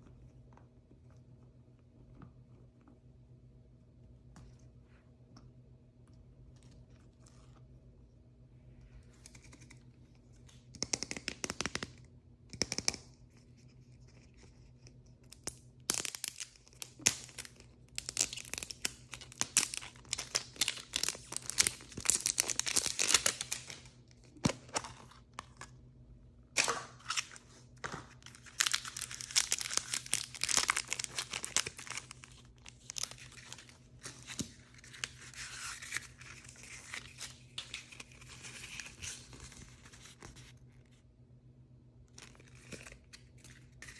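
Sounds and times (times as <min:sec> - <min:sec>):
plastic packaging crinkling: 0:15.9 - 0:24.8, 0:26.6 - 0:40.2.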